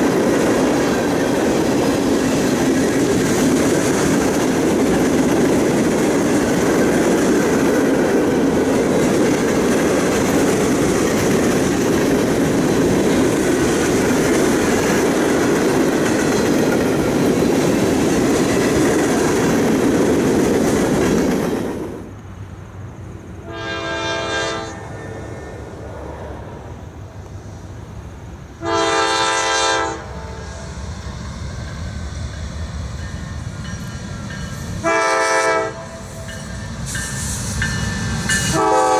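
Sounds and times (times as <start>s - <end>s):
freight train rumbling and clattering: 0.0s - 38.9s
locomotive air horn chord: 23.4s - 25.6s, 28.6s - 30.6s, 34.8s - 36.3s, 38.5s - 38.9s.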